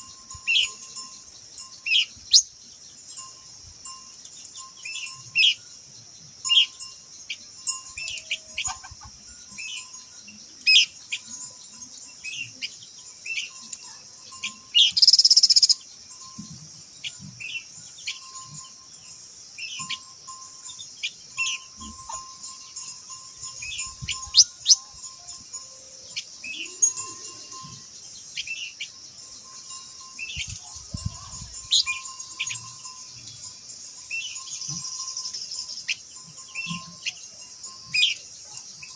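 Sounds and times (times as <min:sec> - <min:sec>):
high insect hiss: 0:00.0 - 0:38.9
bird chirping and whistling: 0:14.5 - 0:15.8, 0:31.6 - 0:32.6.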